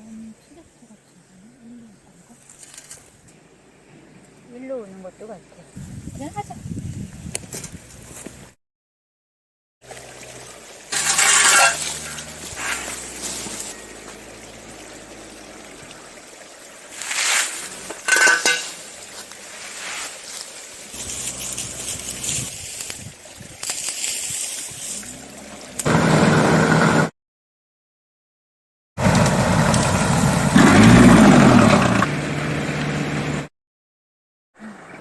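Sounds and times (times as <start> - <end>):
tractor engine humming: 9.9 - 17.0, 20.6 - 22.6, 25.0 - 27.1, 29.0 - 33.4
scraping and clinking bursts: 10.9 - 13.9, 17.0 - 18.8.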